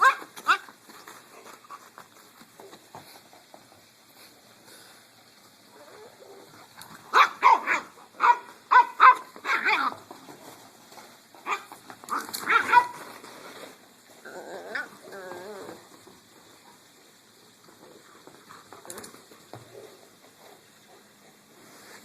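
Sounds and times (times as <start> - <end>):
dogs barking: 7.1 - 9.9, 11.4 - 13.0.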